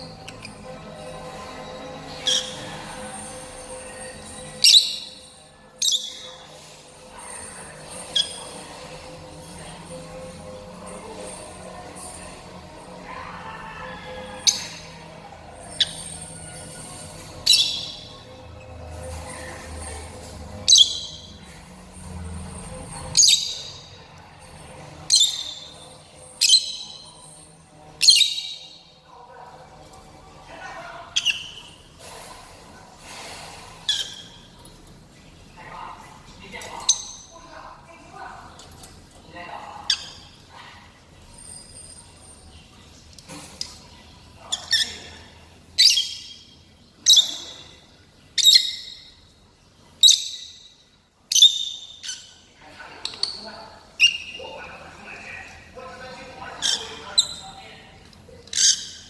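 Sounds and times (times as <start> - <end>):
lovebird shrill calls: 2.2 - 2.6.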